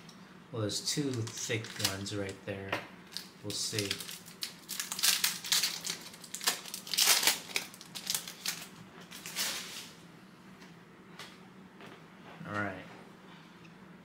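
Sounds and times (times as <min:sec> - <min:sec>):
foil wrapper tearing and crinkling: 0:01.0 - 0:02.4, 0:03.1 - 0:09.9.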